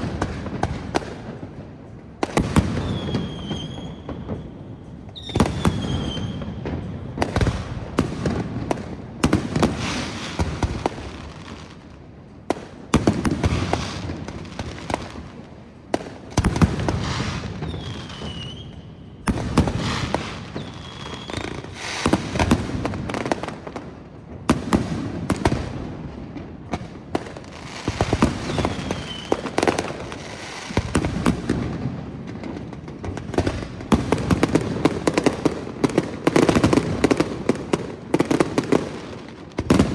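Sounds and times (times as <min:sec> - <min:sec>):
fireworks crackling: 0:00.0 - 0:39.9
falling firework whistles: 0:02.4 - 0:07.5, 0:16.6 - 0:22.6, 0:27.6 - 0:31.1.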